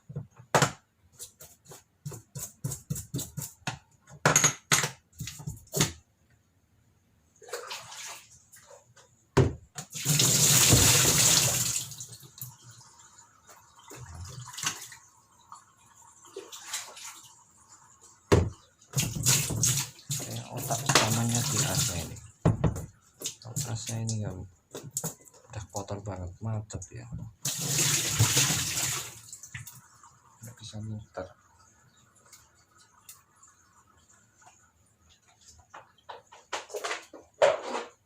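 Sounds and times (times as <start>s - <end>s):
water running and splashing: 9.8s - 25.5s, 27.4s - 36.2s.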